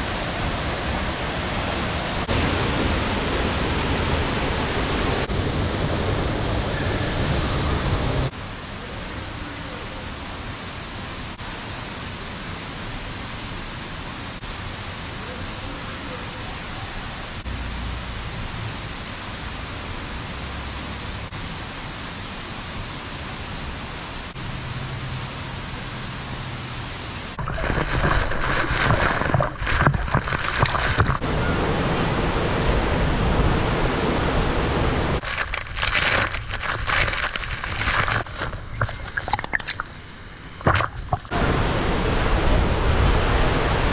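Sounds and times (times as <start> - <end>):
waterfall rushing: 0.0 - 8.6, 27.3 - 43.9.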